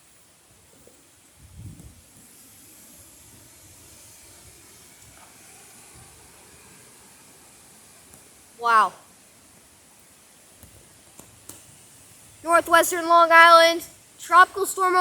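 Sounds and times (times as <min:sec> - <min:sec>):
wind buffeting microphone: 0:01.3 - 0:02.2.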